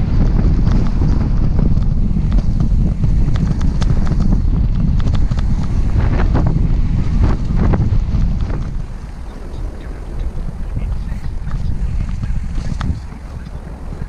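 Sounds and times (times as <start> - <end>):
bike clicks and rattles: 0.0 - 9.9
wind buffeting microphone: 0.0 - 14.0.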